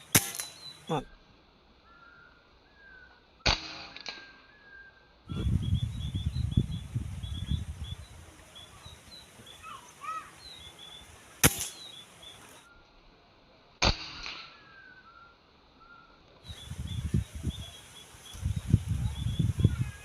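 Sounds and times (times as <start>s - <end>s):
quieter crack: 0.0s - 1.0s, 11.4s - 12.4s
small birds chirping: 0.0s - 1.2s, 4.4s - 13.0s, 14.5s - 20.0s
gunshot: 0.1s - 0.7s, 3.4s - 4.3s, 11.4s - 11.9s, 13.8s - 14.6s
low rumble: 5.3s - 8.5s.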